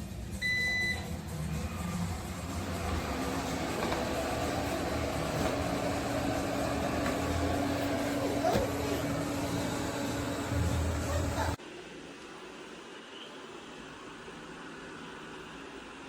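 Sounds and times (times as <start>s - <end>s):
robot vacuum humming: 1.3s - 11.6s.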